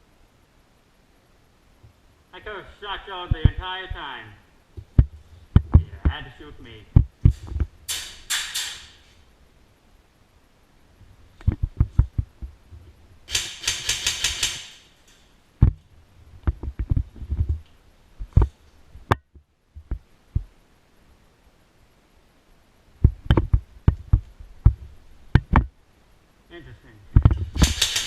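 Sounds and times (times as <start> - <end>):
sharp knocks and thumps: 4.8 - 6.2, 6.9 - 9.0, 11.4 - 12.6, 15.6 - 15.8, 16.4 - 17.6, 18.2 - 20.5, 23.0 - 25.7, 27.2 - 28.0
airsoft gun full-auto burst: 13.3 - 14.9, 27.6 - 28.0.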